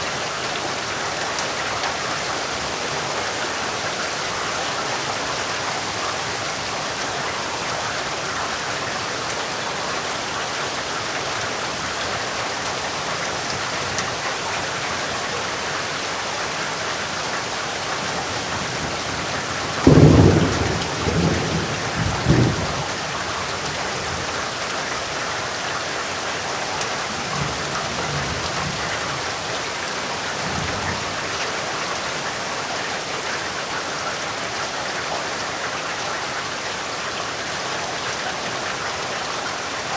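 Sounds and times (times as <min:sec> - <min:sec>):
heavy rain: 0:00.0 - 0:39.9
thunder rumbling: 0:18.6 - 0:23.2.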